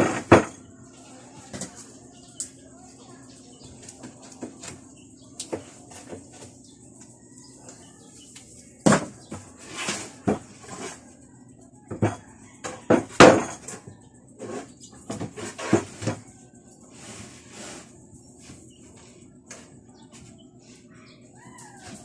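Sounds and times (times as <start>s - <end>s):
hard objects knocking and clattering: 11.9s - 13.9s.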